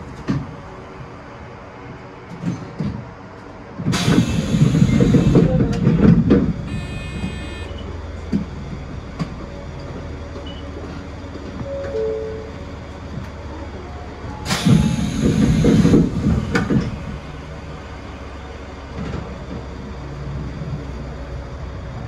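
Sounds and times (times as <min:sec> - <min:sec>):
electric train humming: 0:03.9 - 0:22.0
short electronic tone: 0:06.7 - 0:07.9.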